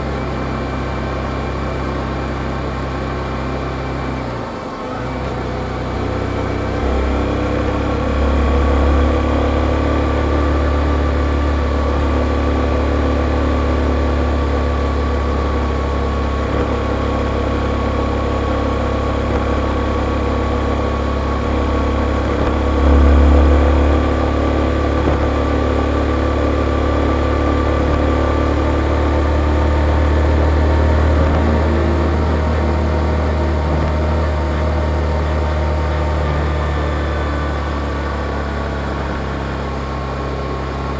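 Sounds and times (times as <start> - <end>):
motorcycle engine running: 5.5 - 40.9.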